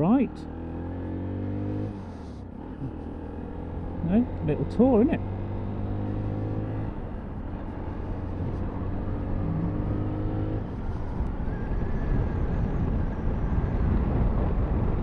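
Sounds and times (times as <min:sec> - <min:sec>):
wind and road noise: 0:00.0 - 0:15.0
motorcycle engine running: 0:01.2 - 0:11.2.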